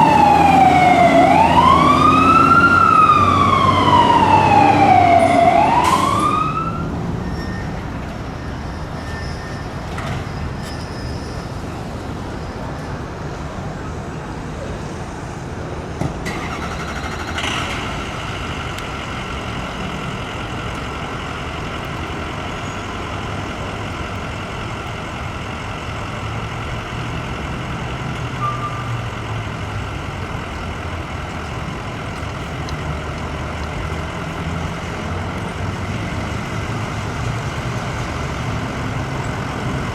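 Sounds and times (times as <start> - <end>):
siren wail: 0.0 - 7.8
heavy vehicle engine running: 0.0 - 10.8, 11.4 - 39.9
road traffic noise: 0.0 - 39.9.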